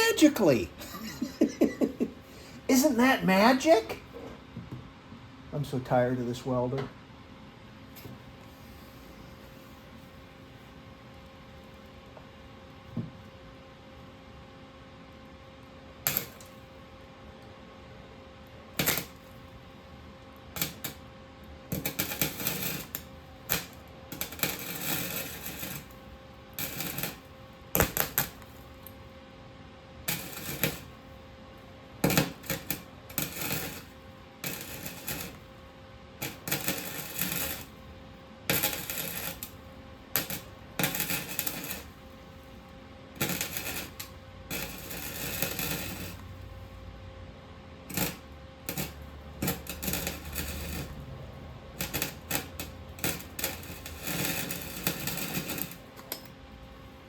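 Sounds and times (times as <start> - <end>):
welder crackling and sputtering: 0.0 - 4.1, 16.0 - 16.7, 18.7 - 19.8, 20.4 - 29.0, 30.0 - 46.8, 47.8 - 56.4.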